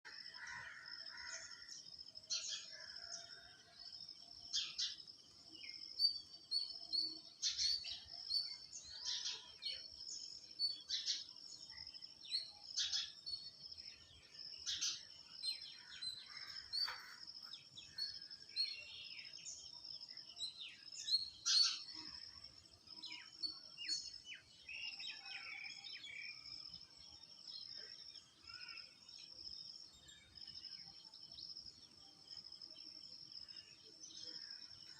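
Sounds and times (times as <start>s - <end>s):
bird chirps and calls: 20.3s - 22.2s.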